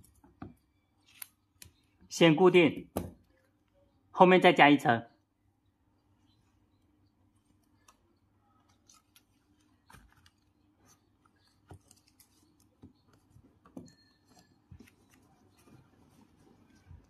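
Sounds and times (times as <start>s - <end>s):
faint clicks and foil rustles: 7.4s - 17.0s.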